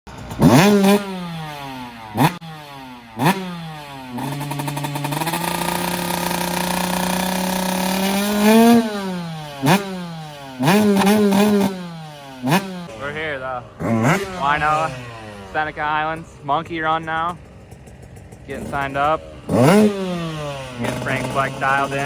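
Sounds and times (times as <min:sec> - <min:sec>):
motorcycle engine revving: 0:00.1 - 0:22.0.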